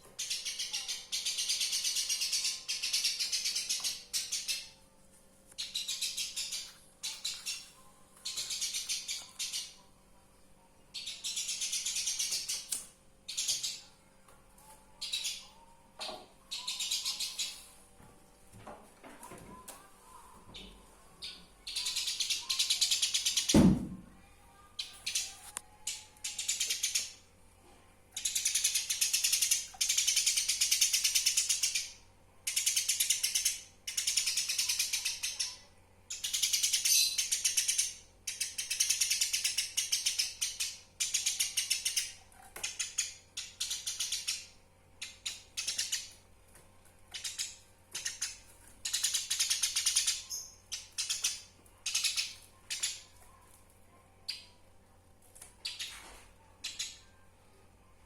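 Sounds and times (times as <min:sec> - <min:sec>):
sparrow chattering: 0:16.5 - 0:17.6, 0:21.2 - 0:23.5.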